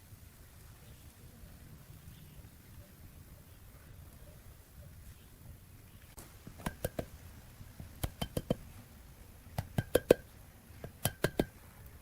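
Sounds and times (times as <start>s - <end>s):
light sharp taps on hard object: 7.8s - 8.6s, 9.6s - 11.5s.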